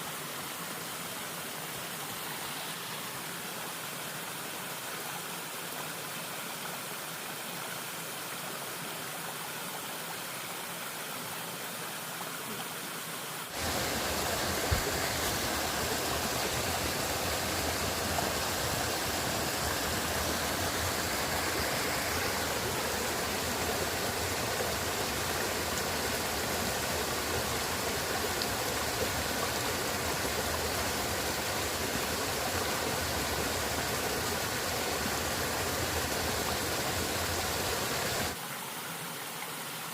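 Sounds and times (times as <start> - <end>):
river water rushing: 9.9 - 39.9.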